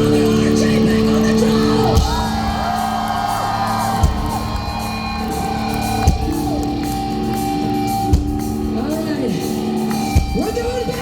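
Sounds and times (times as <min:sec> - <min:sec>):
crowd whooping and yelling: 0:00.0 - 0:08.2
live rock band chords: 0:00.0 - 0:11.0.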